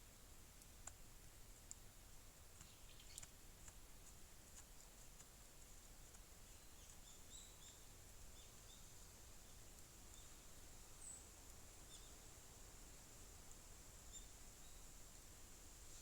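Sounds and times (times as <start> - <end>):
faint sharp clicks: 0.6 - 1.9, 2.6 - 5.4.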